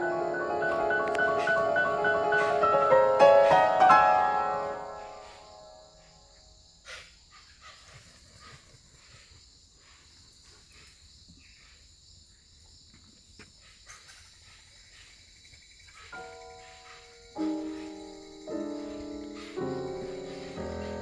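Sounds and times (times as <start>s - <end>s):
high-pitched insect drone: 0.0s - 6.5s, 15.4s - 21.0s.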